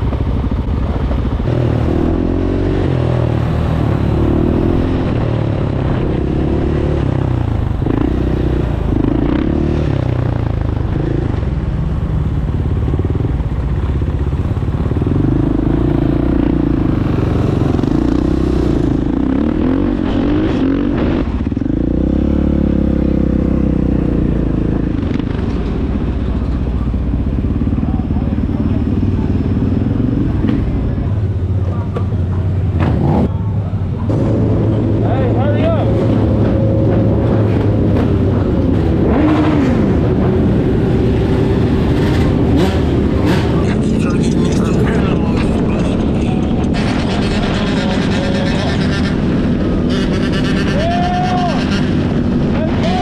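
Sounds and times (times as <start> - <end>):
dirt bike engines revving: 0.0 - 53.0
steady low rumble: 23.6 - 49.8.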